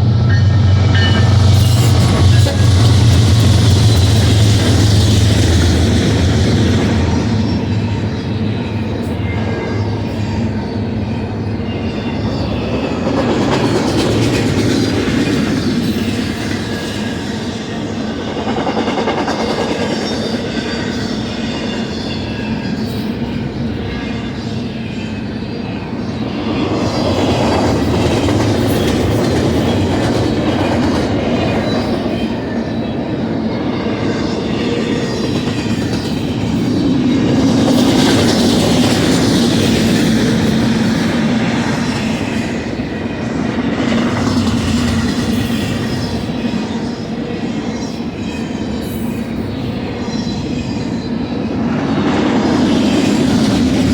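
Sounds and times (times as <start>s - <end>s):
freight train rumbling past: 0.0s - 53.9s.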